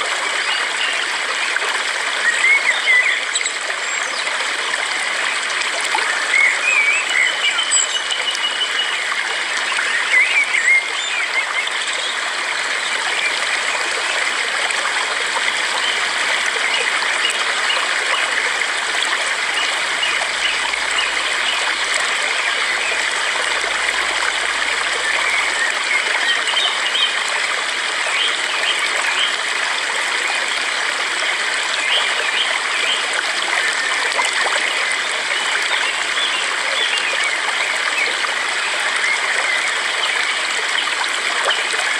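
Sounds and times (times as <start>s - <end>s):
flowing stream: 0.0s - 41.9s.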